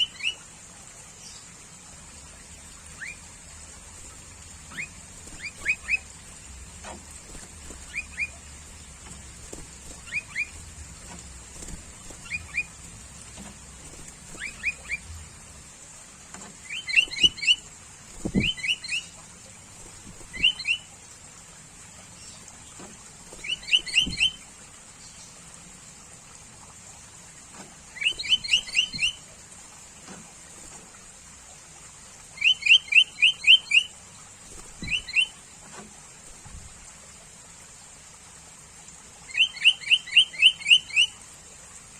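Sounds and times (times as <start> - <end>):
bird whistled calls: 3.0 - 3.2, 4.7 - 6.1, 7.3 - 8.4, 9.9 - 10.6, 11.6 - 12.8, 14.3 - 15.1, 16.7 - 17.6, 18.2 - 19.1, 20.2 - 20.9, 23.4 - 24.4, 28.0 - 29.2, 32.4 - 33.9, 34.8 - 35.4, 39.3 - 41.2.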